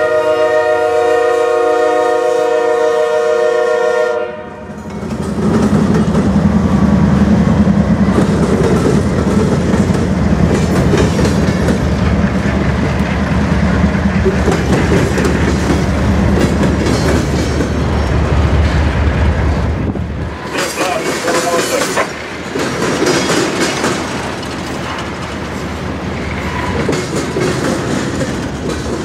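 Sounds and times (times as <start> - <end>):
locomotive horn: 0.0 - 4.8
train wheels clattering on rail: 4.7 - 29.0.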